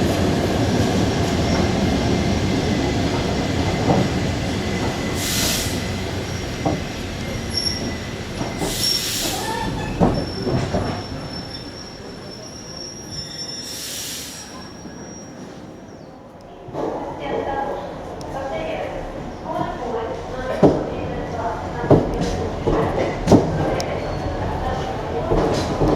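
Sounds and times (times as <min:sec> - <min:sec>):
train wheels rumbling on rails: 0:00.0 - 0:15.8, 0:16.6 - 0:25.9
track knocks: 0:08.4 - 0:11.1.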